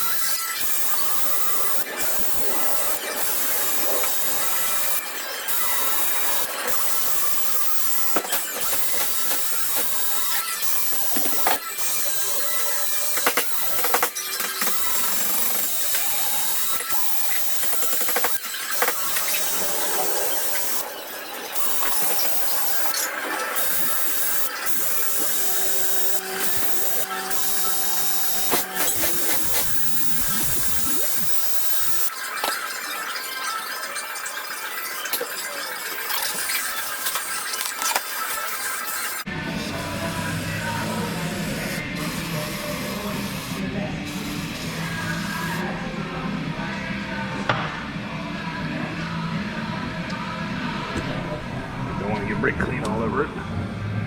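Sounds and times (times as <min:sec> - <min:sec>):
hissing tool work on metal: 0:00.0 - 0:32.2, 0:35.1 - 0:45.6
die grinder grinding metal: 0:00.0 - 0:45.6
steady whine: 0:48.7 - 0:54.0.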